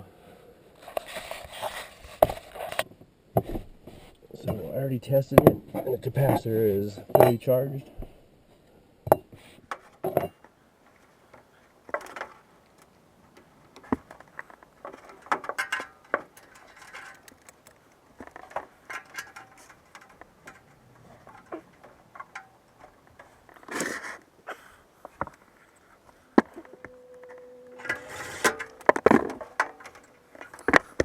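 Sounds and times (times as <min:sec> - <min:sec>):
hand tools clinking: 0:09.1 - 0:31.0
metal clatter: 0:11.9 - 0:24.2, 0:26.4 - 0:31.0.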